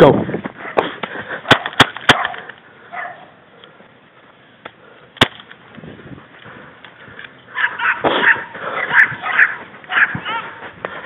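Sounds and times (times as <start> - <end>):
bb gun firing: 5.2 - 5.5.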